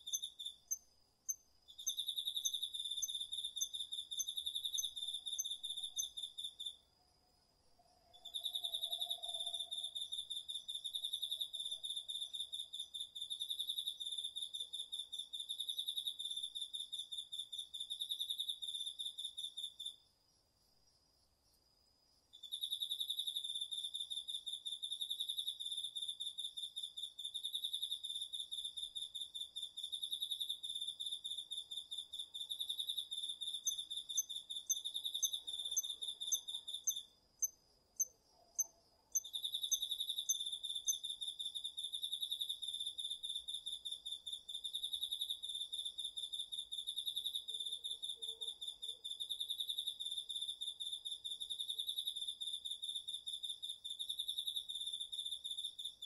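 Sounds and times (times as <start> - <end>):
short sharp insect chirps: 0.0 - 6.8, 31.4 - 45.4
faint steady high insect trill: 0.0 - 56.0.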